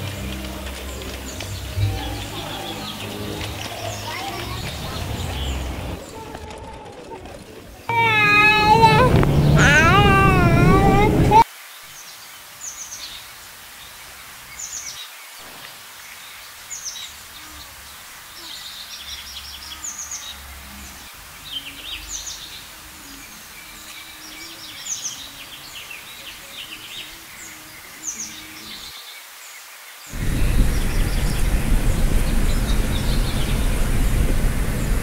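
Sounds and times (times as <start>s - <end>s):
small birds chirping: 0.0s - 6.4s, 7.7s - 35.0s
steady hiss: 7.9s - 35.0s
loud steady noise: 30.1s - 35.0s.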